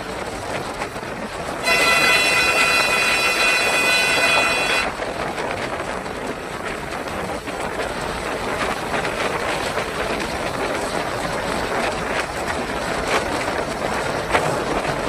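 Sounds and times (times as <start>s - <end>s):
horn blast: 1.6s - 4.9s.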